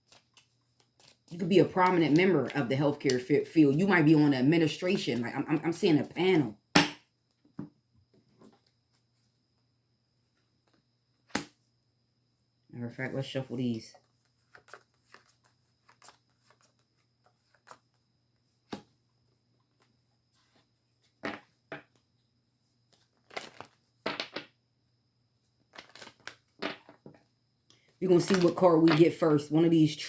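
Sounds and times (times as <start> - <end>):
cards being shuffled: 22.9 - 24.3, 25.7 - 27.0, 28.2 - 29.1.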